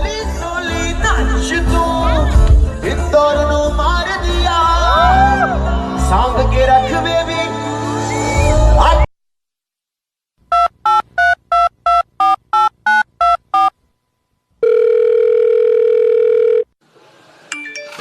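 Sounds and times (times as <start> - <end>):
telephone ringing tone: 10.5 - 13.7, 14.6 - 16.8
touch-tone keypad beeps: 10.5 - 13.7.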